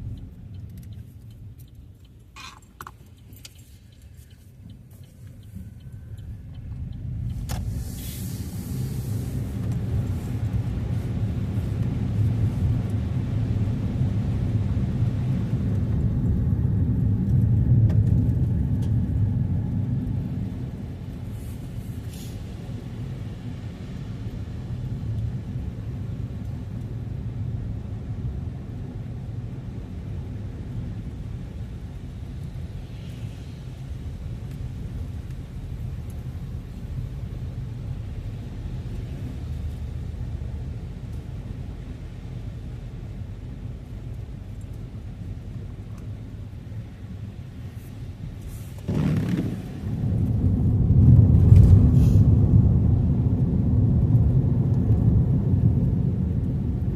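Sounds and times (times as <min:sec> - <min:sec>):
car engine accelerating: 0:48.8 - 0:51.8.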